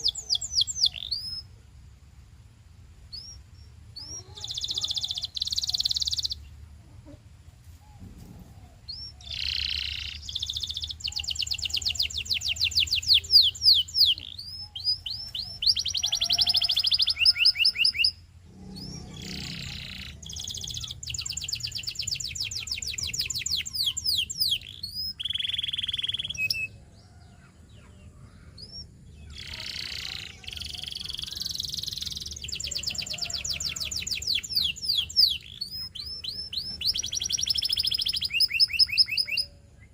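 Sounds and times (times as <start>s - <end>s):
canary singing trills: 0.0s - 1.6s, 3.1s - 7.2s, 7.9s - 39.9s.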